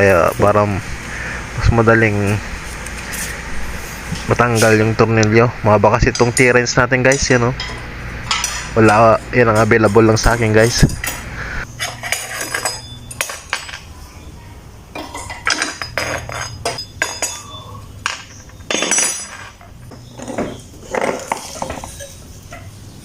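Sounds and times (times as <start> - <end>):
wrench clinking and scraping on bolts: 6.0 - 13.9, 15.0 - 22.7.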